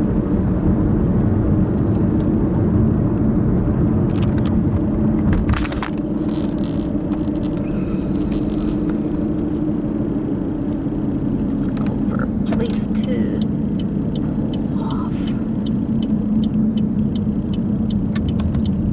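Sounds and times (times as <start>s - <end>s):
car road and engine rumble: 0.0s - 18.9s
sharp clicks and knocks: 15.6s - 18.8s.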